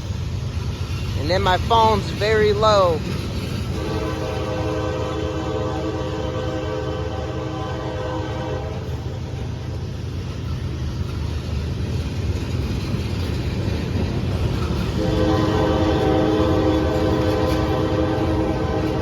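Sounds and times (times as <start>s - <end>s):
train rumble: 0.0s - 19.0s
locomotive horn: 3.7s - 9.5s, 14.9s - 19.0s.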